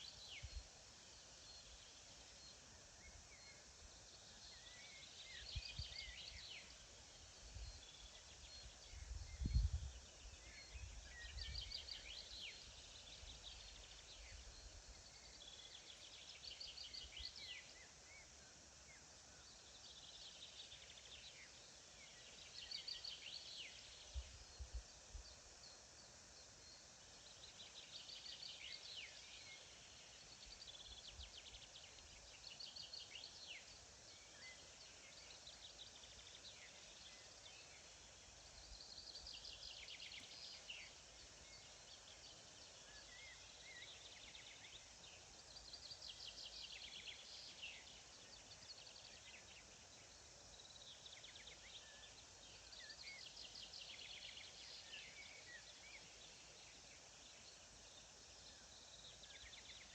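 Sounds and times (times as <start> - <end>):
faint countryside hiss: 0.0 - 59.9
soft bird chirps: 0.0 - 59.9.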